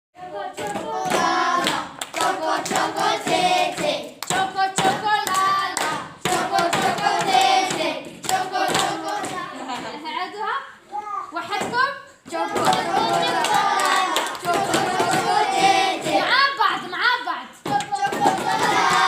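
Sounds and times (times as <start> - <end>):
high voices singing together: 0.2 - 9.8, 12.3 - 16.4, 17.6 - 19.0
hand clapping: 0.6 - 9.4, 12.5 - 16.3, 17.7 - 19.0.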